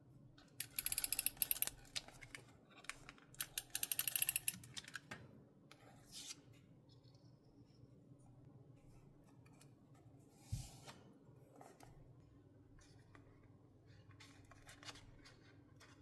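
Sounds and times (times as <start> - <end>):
faint paper rustling: 12.7 - 16.0.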